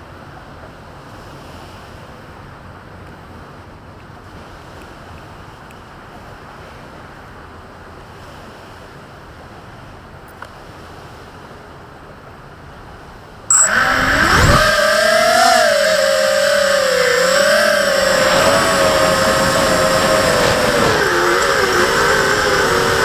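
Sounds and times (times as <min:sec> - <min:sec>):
quadcopter motors whining: 0:13.5 - 0:23.0.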